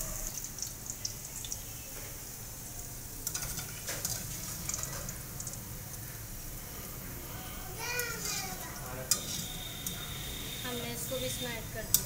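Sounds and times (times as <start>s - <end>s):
oil sizzling in a pan: 0.0s - 12.0s
metal spatula scraping pans: 3.2s - 5.2s, 8.0s - 12.0s.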